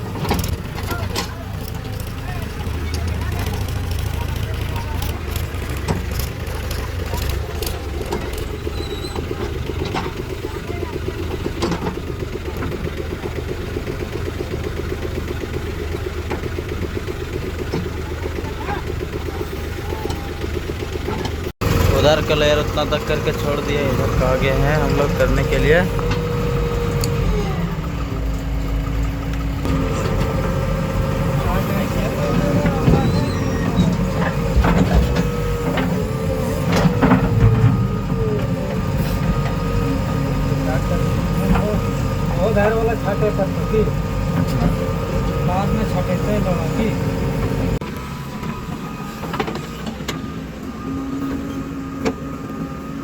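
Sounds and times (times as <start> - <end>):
diesel engine running: 0.0 - 53.0
hydraulic whine: 21.1 - 53.0.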